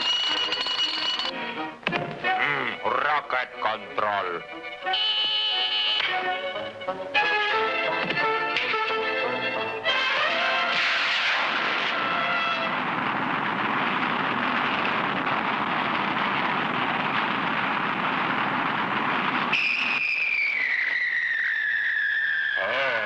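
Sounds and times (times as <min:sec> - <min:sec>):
long downward whistle: 0:19.5 - 0:23.0.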